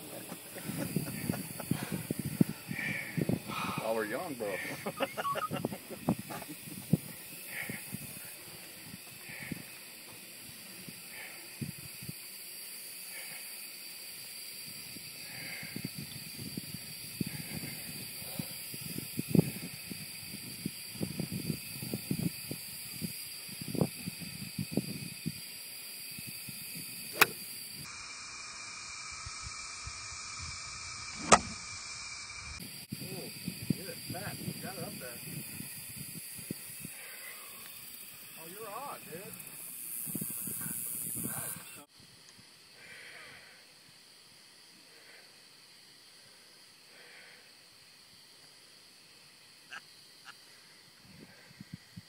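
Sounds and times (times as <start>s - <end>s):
steady outdoor hiss: 0.0s - 52.0s
wind thumps on microphone: 0.6s - 3.8s, 5.5s - 8.2s
golf club striking ball: 27.2s - 27.4s, 31.2s - 31.6s.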